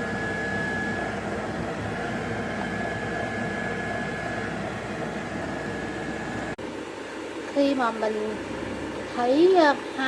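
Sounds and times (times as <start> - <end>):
air fryer fan whirring: 0.0 - 10.0
high constant whine: 0.0 - 10.0.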